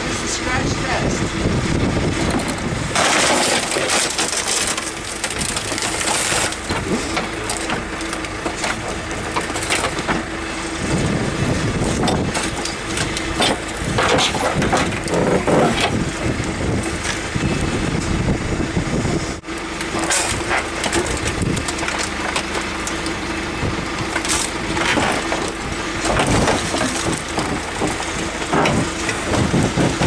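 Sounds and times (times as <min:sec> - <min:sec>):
backhoe engine drone: 0:00.0 - 0:30.0
metal and glass crunching: 0:02.2 - 0:10.3, 0:11.7 - 0:17.3, 0:19.8 - 0:30.0.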